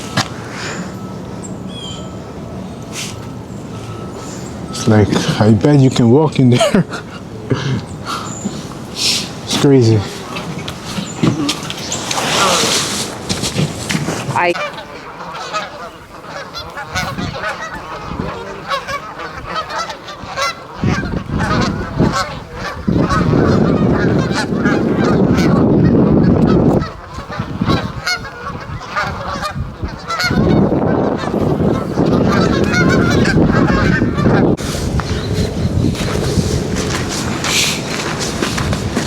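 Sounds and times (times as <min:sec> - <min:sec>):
geese honking: 0:00.0 - 0:39.0
loud low rumble: 0:32.6 - 0:39.0.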